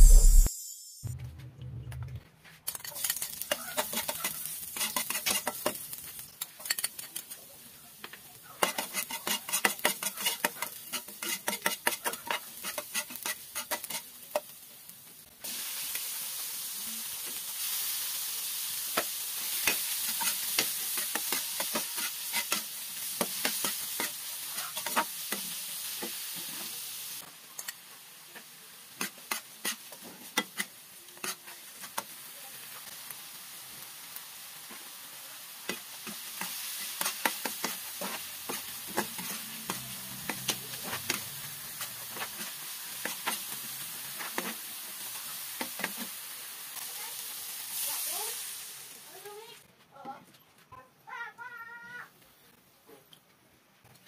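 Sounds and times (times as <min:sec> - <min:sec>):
metal spatula clicking and scraping: 0:02.7 - 0:07.4, 0:08.6 - 0:14.6, 0:19.6 - 0:25.5, 0:27.6 - 0:27.8, 0:29.0 - 0:32.1, 0:35.7 - 0:44.7
food sizzling in oil: 0:02.7 - 0:49.6.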